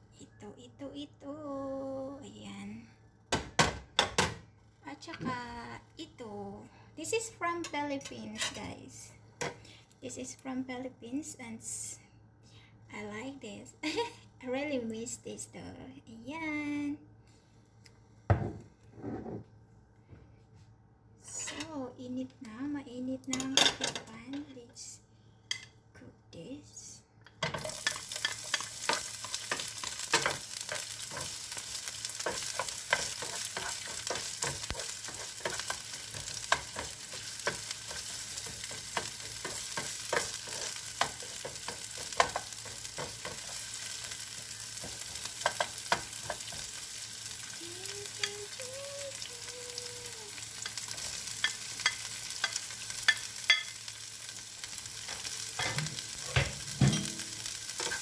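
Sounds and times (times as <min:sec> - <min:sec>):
vegetables sizzling in hot oil: 0:27.4 - 0:58.0.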